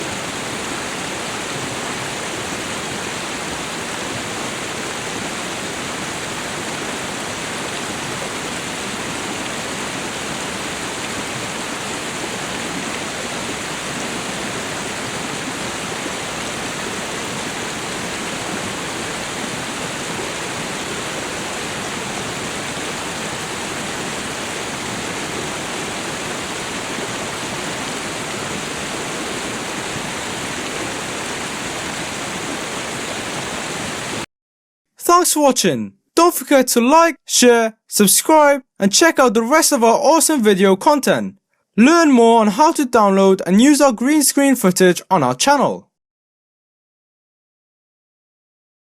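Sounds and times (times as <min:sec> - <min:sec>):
water flowing hard: 0:00.0 - 0:34.3.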